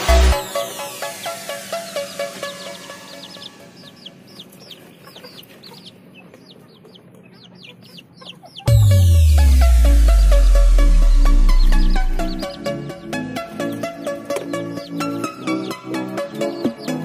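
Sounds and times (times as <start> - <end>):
electronic dance music: 0.0 - 3.8, 8.7 - 13.4
chicks peeping: 0.0 - 17.0.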